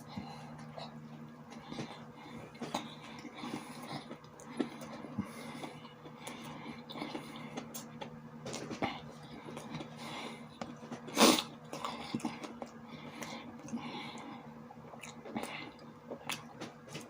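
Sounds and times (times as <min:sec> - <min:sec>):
wet chewing mouth sounds: 0:00.0 - 0:17.0.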